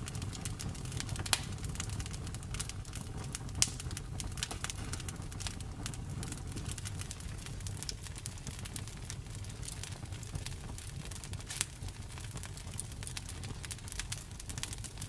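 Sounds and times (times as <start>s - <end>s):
low rumble of fire: 0.0s - 15.0s
sharp pops of fire: 0.0s - 15.0s
wood fire crackling: 0.0s - 15.0s.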